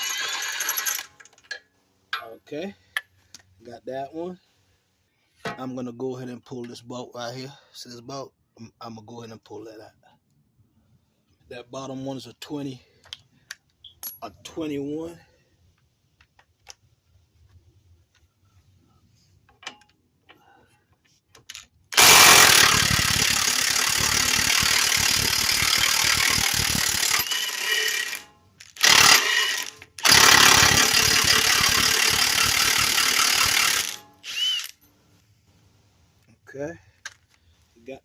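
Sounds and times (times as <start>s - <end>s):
impact wrench hammering: 22.0s - 34.7s.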